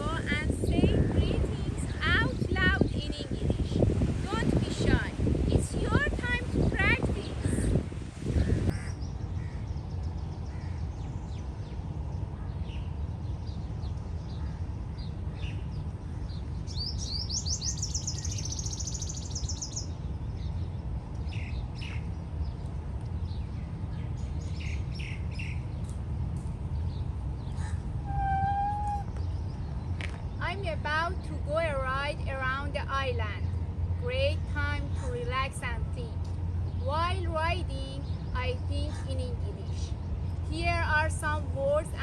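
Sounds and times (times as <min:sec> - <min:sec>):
small birds chirping: 0:00.4 - 0:42.0
rapid high bird trill: 0:16.7 - 0:20.0.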